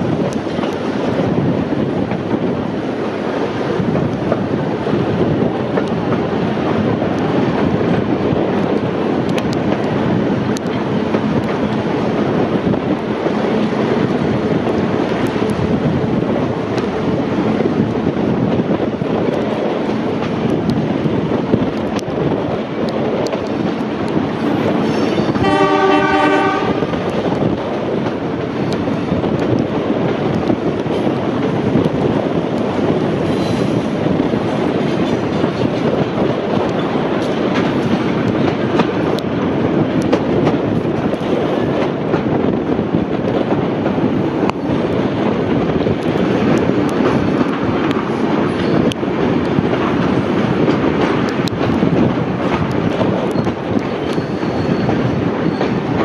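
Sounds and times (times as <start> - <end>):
train wheels rumbling on rail: 0.0 - 56.0
locomotive horn blast: 25.3 - 26.9.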